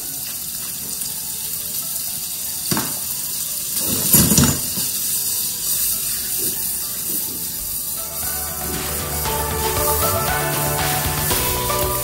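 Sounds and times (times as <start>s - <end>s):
prawns sizzling in hot oil: 0.0s - 12.0s
utensil clattering in a pan: 2.6s - 7.5s.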